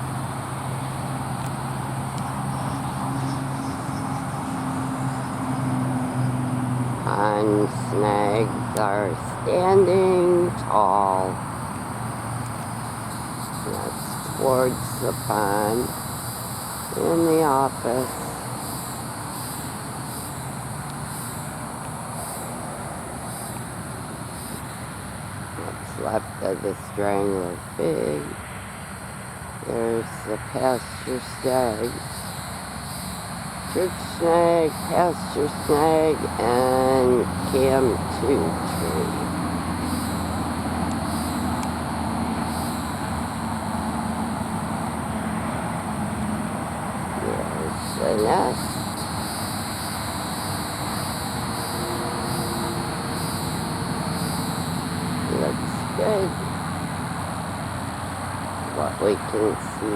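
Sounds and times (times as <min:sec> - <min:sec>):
distant road traffic rumble: 0:00.0 - 0:59.9
high insect chorus: 0:00.0 - 0:59.9
low drone: 0:33.6 - 0:59.9.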